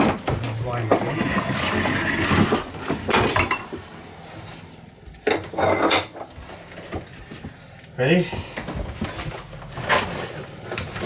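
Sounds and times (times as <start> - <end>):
heavy machine clattering and scraping: 0.0 - 7.4, 8.3 - 11.0.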